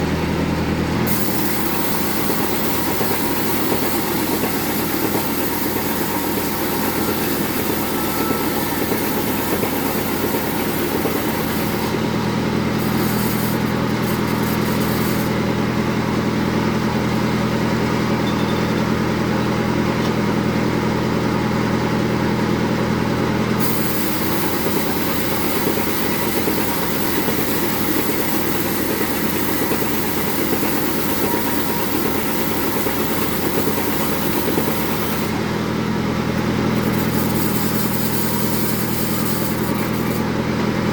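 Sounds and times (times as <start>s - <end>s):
bandsaw cutting wood: 1.1s - 15.7s, 23.6s - 35.4s, 36.7s - 40.3s.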